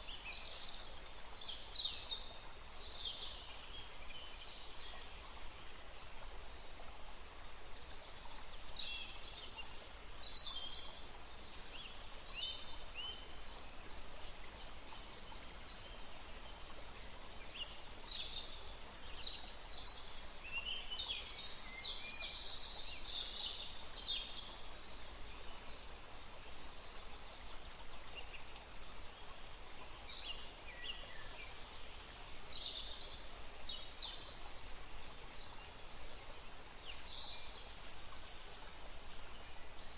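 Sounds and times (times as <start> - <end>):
rushing hiss of wind or water: 0.0 - 39.9.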